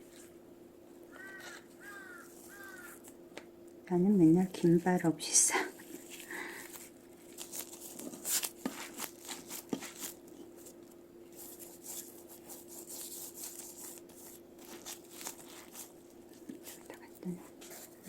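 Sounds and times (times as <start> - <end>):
faint steady hum: 0.0 - 18.0
crinkling and rustling of sheets: 5.7 - 18.0.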